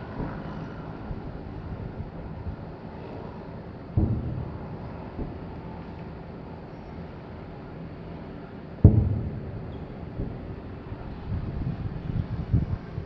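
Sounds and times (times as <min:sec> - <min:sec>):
low background rumble: 0:00.0 - 0:13.0
distant fireworks booming: 0:03.9 - 0:06.0, 0:08.8 - 0:12.8.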